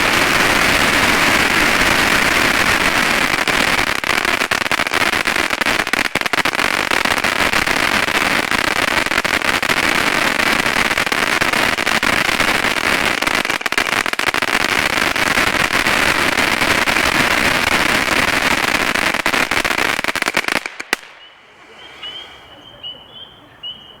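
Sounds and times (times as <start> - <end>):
firework fountain crackling: 0.0 - 22.4
faint high chirps: 21.2 - 24.0.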